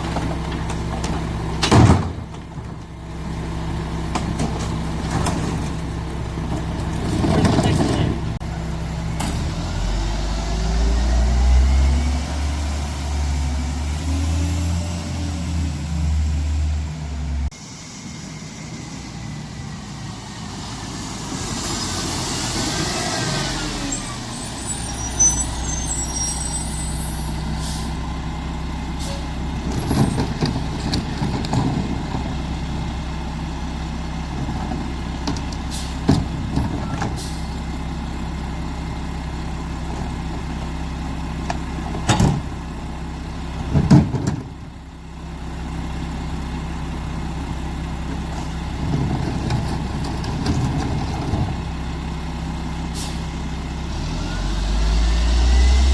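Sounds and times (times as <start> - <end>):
diesel truck engine running: 0.0 - 55.9
air brake hiss with squeal: 21.4 - 28.0, 29.0 - 29.3, 52.9 - 53.3.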